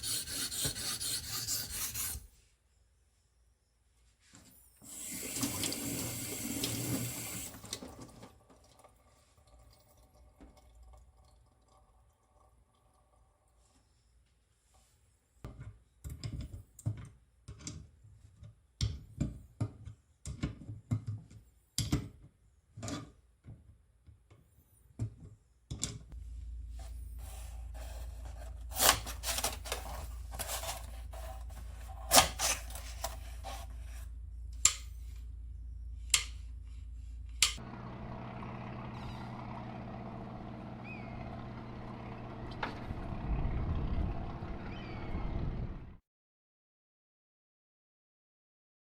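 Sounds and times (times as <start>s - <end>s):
steady low hum: 26.2s - 46.0s.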